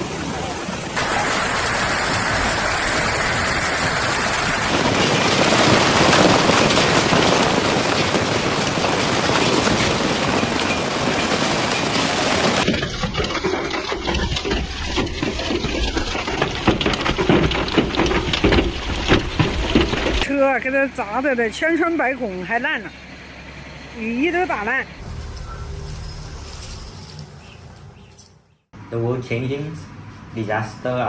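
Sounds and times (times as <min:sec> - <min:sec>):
hail and heavy rain hissing: 0:00.0 - 0:20.3
hailstones knocking: 0:00.9 - 0:20.3.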